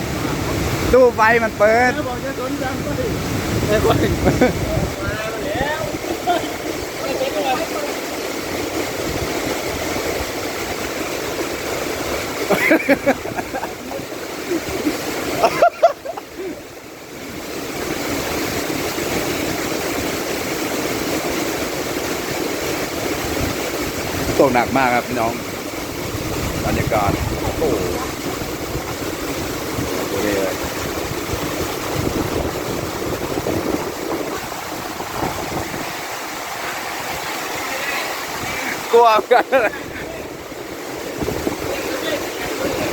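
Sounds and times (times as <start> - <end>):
heavy rain pouring: 0.0 - 42.9
wind rumbling on microphone: 0.0 - 42.9.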